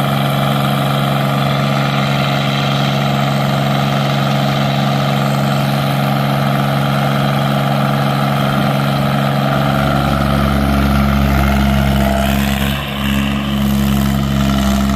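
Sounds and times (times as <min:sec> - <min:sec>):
skid steer engine running: 0:00.0 - 0:14.9
deep low rumble: 0:08.8 - 0:14.9.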